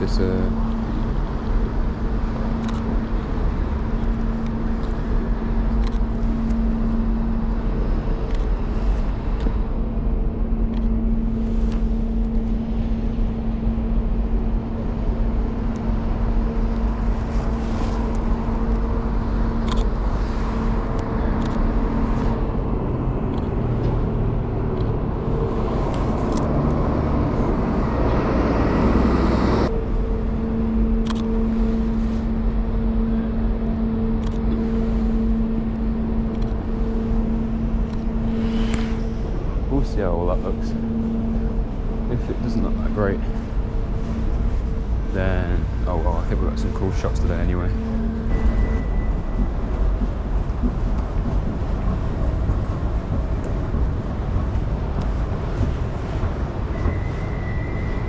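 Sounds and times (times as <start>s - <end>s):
road traffic rumble: 0.0s - 58.0s
steady mechanical hum: 0.0s - 58.0s
vehicle noise: 0.0s - 58.0s.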